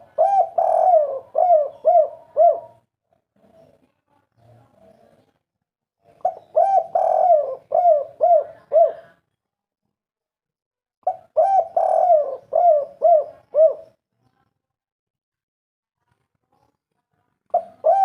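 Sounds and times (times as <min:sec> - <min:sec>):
dove cooing: 0:00.0 - 0:02.8, 0:06.2 - 0:09.2, 0:11.0 - 0:14.0, 0:17.5 - 0:18.0.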